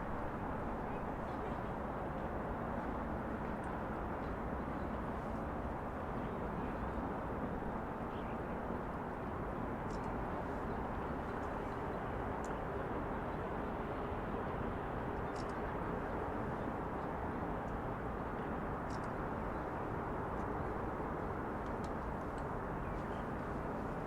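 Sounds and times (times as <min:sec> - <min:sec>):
distant traffic hum: 0:07.6 - 0:24.0.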